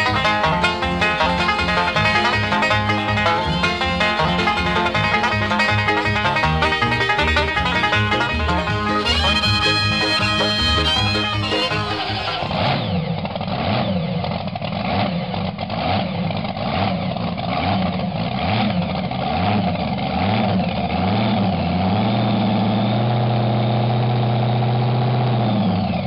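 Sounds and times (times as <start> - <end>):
race engine revving: 0.0 - 14.1.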